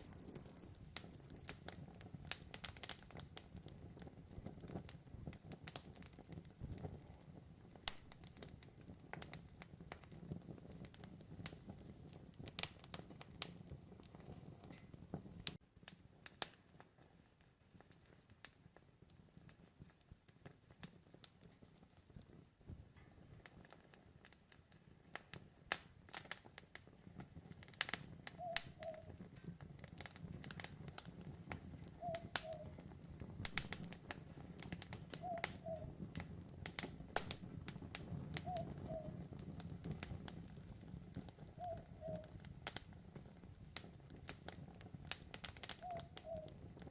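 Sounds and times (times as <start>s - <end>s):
owl hooting: 0.0s - 1.5s, 28.4s - 29.1s, 32.0s - 32.7s, 35.2s - 35.9s, 38.4s - 39.1s, 41.6s - 42.3s, 45.8s - 46.6s
campfire crackling: 0.0s - 46.9s.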